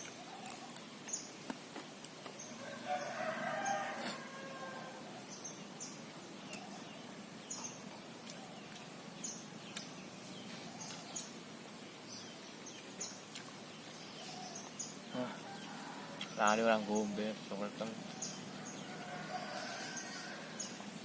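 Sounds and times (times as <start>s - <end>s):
small bird chirping: 5.2s - 11.4s, 12.0s - 21.0s.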